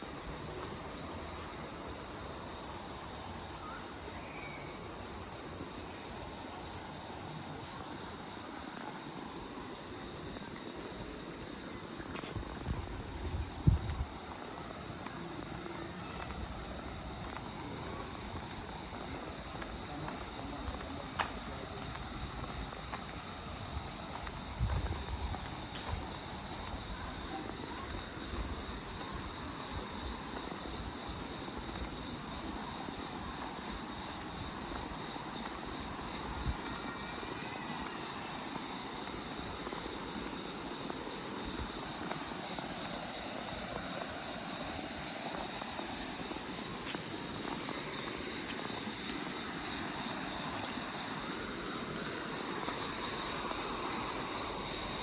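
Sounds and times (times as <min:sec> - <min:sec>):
insect chorus: 0:00.0 - 0:55.0
wind rumble on microphone: 0:12.3 - 0:14.3, 0:23.5 - 0:27.2.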